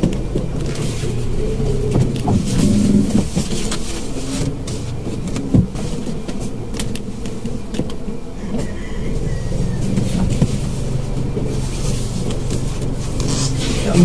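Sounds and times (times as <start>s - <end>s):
car engine and road rumble: 0.0s - 14.0s
sharp knocks and clicks: 1.9s - 3.8s.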